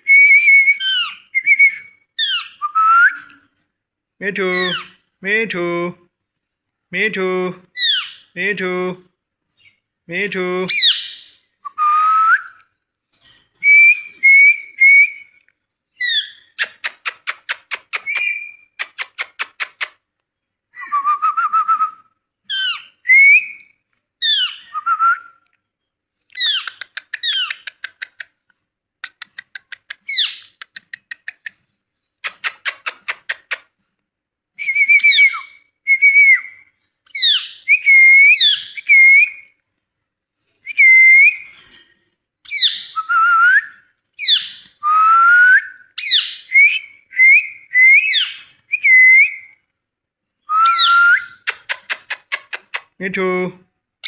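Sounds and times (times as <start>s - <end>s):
parrot whistling and calling: 0.0s - 3.3s, 7.8s - 8.4s, 10.7s - 11.5s, 16.0s - 19.9s, 22.4s - 23.6s, 24.2s - 25.4s, 30.1s - 30.6s, 34.7s - 39.5s, 42.5s - 49.6s, 50.4s - 52.8s.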